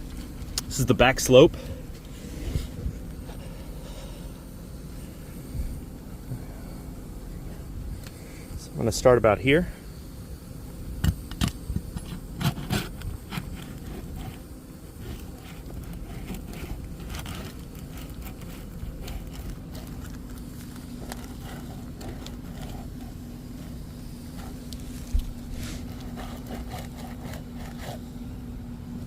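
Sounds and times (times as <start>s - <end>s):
shingles scraping and crackling: 11.8s - 27.9s.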